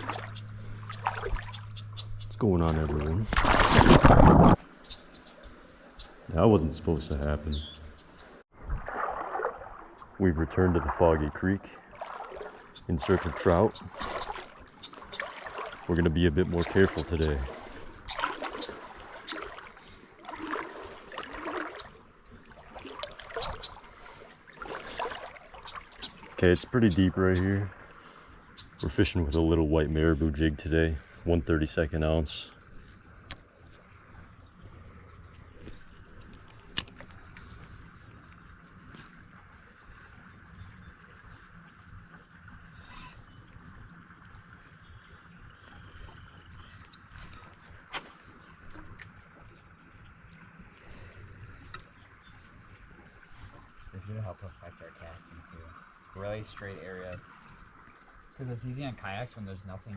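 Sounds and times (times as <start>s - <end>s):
water sloshing and splashing: 0.0s - 7.4s, 8.0s - 29.0s, 32.6s - 59.3s
insect chorus trilling: 0.0s - 8.4s, 10.2s - 59.9s.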